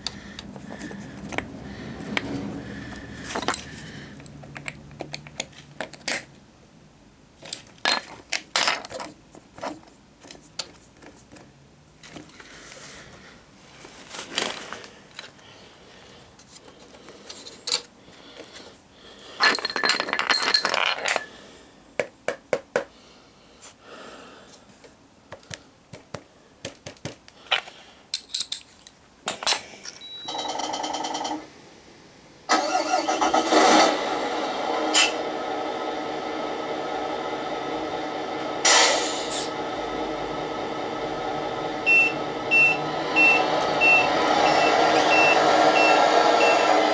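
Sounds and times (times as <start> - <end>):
pitched engine-like sound: 0.1 - 4.5, 32.5 - 46.9
short steady buzzing tone: 41.4 - 46.7.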